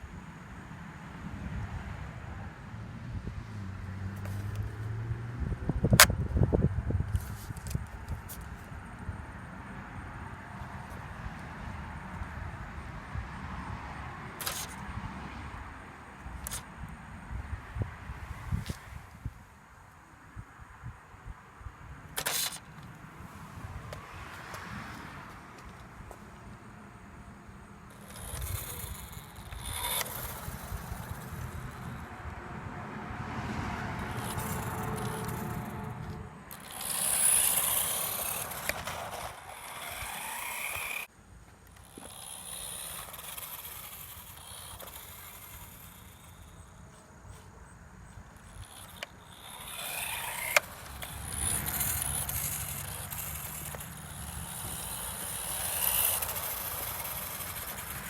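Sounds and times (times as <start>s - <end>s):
toy car motor whine: 4.2s - 4.9s, 14.4s - 14.9s, 16.2s - 16.7s, 22.2s - 22.6s, 27.8s - 32.1s, 33.6s - 41.1s, 41.7s - 47.5s, 48.3s - 58.0s
tyre scraping noise: 33.9s - 41.1s, 48.4s - 58.0s.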